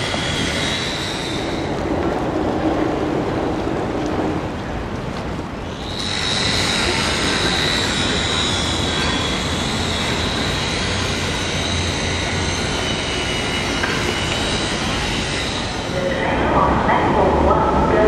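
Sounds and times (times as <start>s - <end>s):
train wheels squealing on rails: 0.0s - 1.9s, 5.6s - 16.3s
train rumbling: 0.0s - 18.0s.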